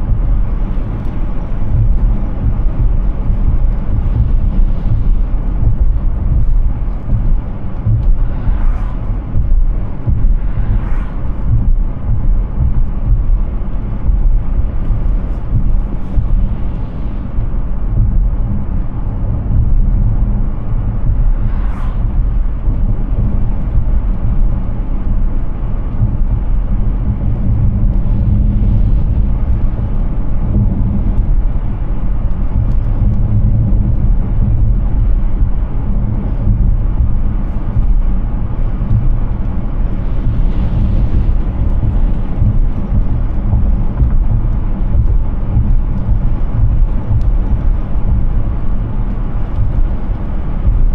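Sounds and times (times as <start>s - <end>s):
tyres rumbling on pavement: 0.0s - 50.9s
wind: 0.0s - 50.9s.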